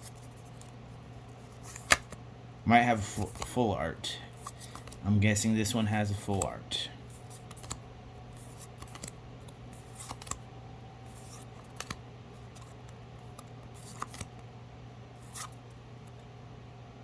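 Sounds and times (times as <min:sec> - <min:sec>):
cards sliding and clicking: 0:00.0 - 0:02.2, 0:03.0 - 0:03.6, 0:04.3 - 0:05.0, 0:05.6 - 0:14.5, 0:15.2 - 0:16.3
steady low hum: 0:00.0 - 0:17.0.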